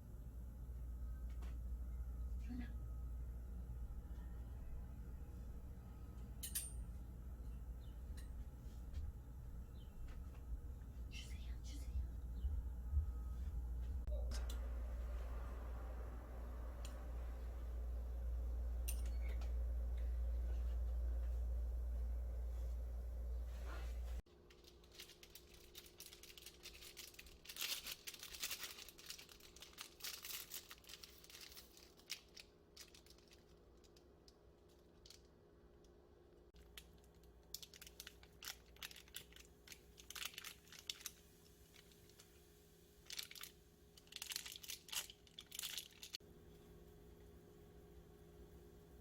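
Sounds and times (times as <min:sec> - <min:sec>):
faint steady hum: 0:00.0 - 0:49.0
material rustling and crinkling: 0:22.5 - 0:35.4, 0:36.5 - 0:42.4, 0:43.0 - 0:46.2.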